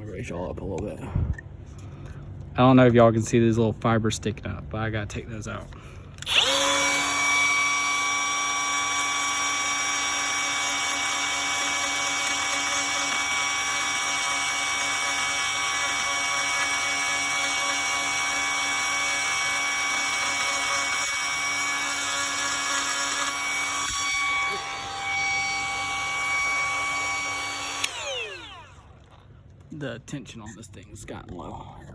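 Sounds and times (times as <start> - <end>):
power grinder grinding fiberglass: 6.2 - 29.2.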